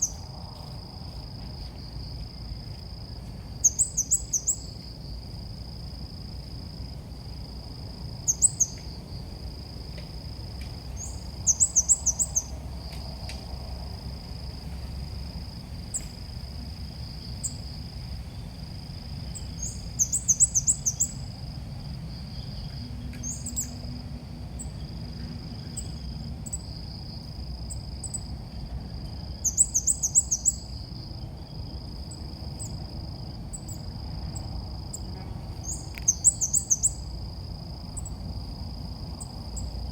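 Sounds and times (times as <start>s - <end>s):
low background rumble: 0.0s - 39.9s
bird chirping rapidly: 35.6s - 37.0s.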